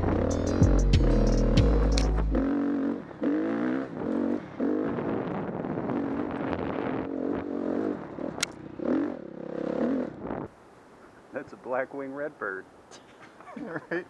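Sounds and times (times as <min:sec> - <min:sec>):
dirt bike engine revving: 0:00.0 - 0:10.5.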